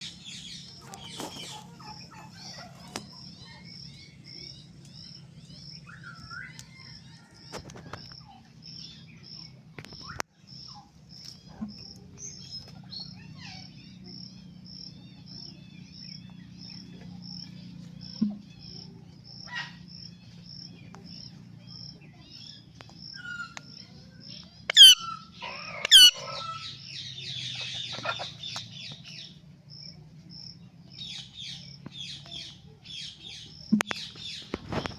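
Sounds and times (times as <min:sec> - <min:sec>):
low hum: 0:10.6 - 0:23.0
parrot screeching: 0:24.7 - 0:26.8.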